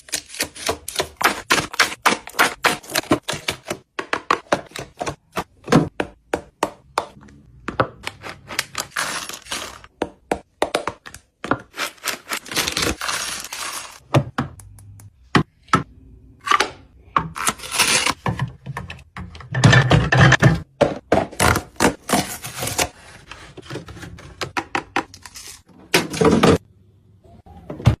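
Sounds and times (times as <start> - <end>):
packaging rustling: 11.8 - 14.0.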